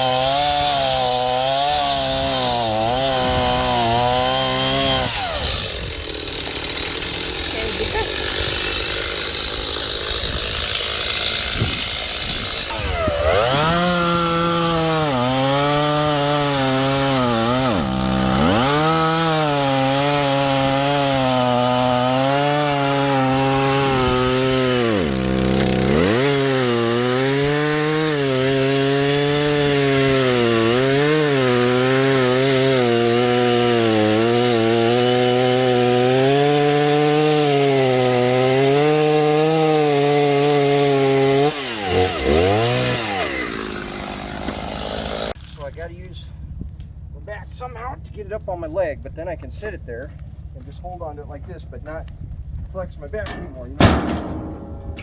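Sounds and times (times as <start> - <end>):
chainsaw cutting firewood: 0.0 - 55.0.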